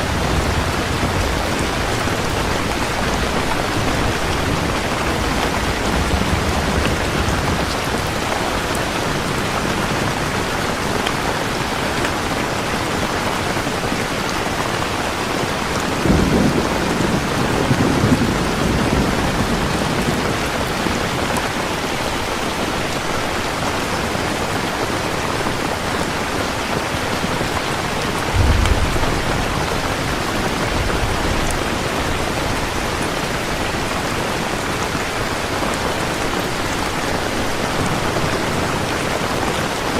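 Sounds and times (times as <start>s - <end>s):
low rumble of thunder: 0.0s - 9.3s, 15.8s - 21.4s, 28.2s - 33.9s
heavy rainfall: 0.0s - 39.9s.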